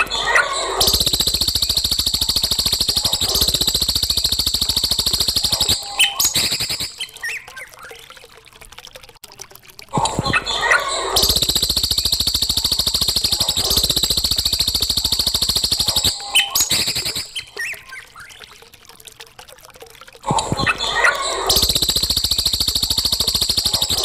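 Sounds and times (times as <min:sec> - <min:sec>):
songbird chirping and trilling: 0:05.4 - 0:08.1, 0:15.8 - 0:18.5.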